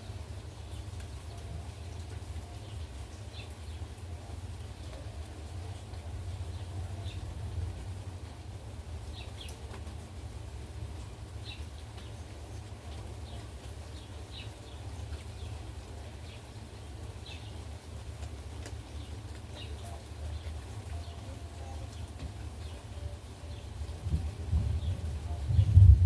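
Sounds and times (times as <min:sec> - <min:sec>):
heavy rain falling: 0:00.0 - 0:26.0
gusty wind on microphone: 0:24.0 - 0:26.0.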